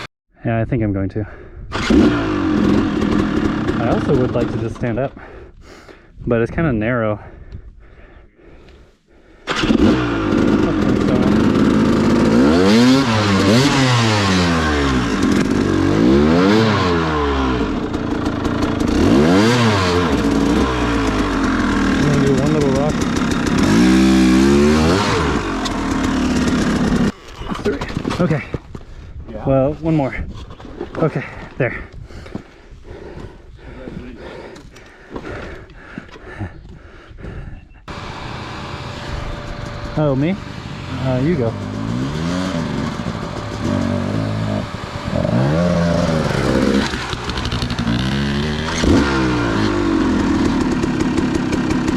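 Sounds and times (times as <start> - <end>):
dirt bike engine revving: 1.7 - 5.0, 9.5 - 28.4, 37.9 - 51.9.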